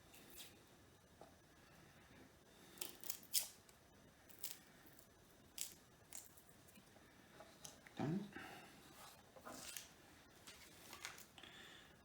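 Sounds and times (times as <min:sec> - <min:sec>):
garlic being peeled and cut: 0:02.6 - 0:06.5.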